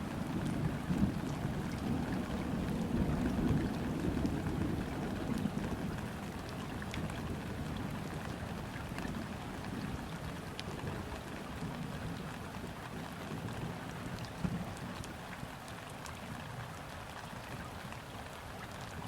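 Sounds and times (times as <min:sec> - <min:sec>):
rain falling on river water: 0:00.0 - 0:19.0.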